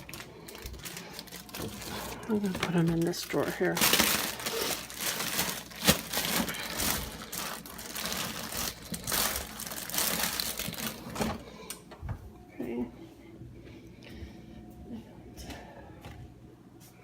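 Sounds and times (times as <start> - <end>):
plastic bags crinkling: 0.0 - 11.4.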